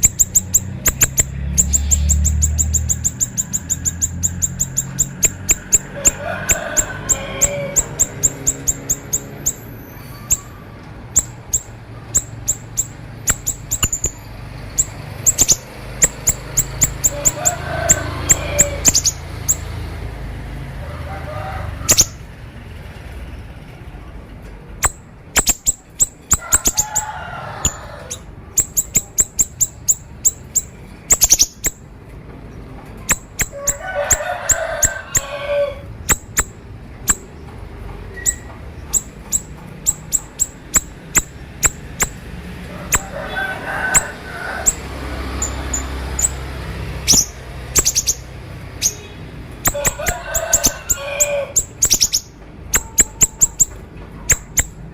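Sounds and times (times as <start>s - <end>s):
bird song with sharp clicking notes: 0.0s - 5.9s, 10.2s - 17.4s, 24.8s - 26.9s, 28.6s - 32.2s, 32.9s - 33.8s, 36.0s - 42.2s, 51.6s - 54.8s
bird chattering: 0.0s - 19.8s, 21.8s - 22.3s, 24.8s - 31.9s, 33.0s - 37.4s, 38.0s - 54.9s.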